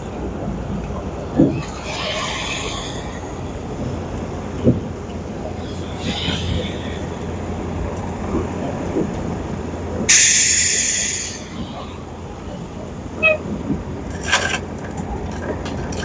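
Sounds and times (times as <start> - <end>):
diesel machinery rumbling: 0.0 - 16.0
air brakes hissing: 1.6 - 4.5, 5.5 - 7.9, 10.1 - 13.4.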